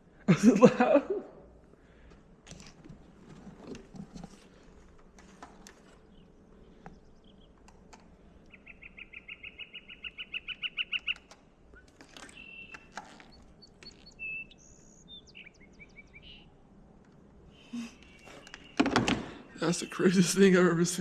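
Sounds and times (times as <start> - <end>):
clicks: 10.9 - 14.2
short whistled bird notes: 12.2 - 16.4.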